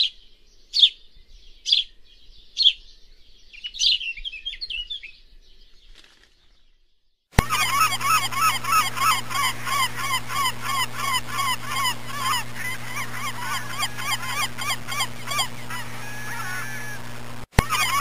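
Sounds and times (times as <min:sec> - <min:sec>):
birds calling short hooked calls: 0:07.4 - 0:18.0.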